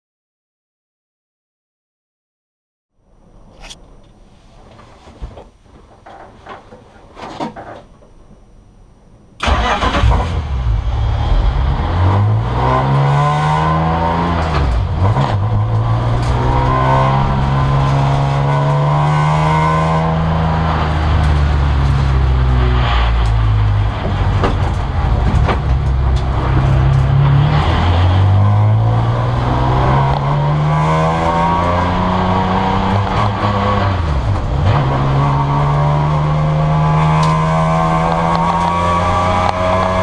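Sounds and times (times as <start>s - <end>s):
race car engine revving: 9.4s - 40.0s.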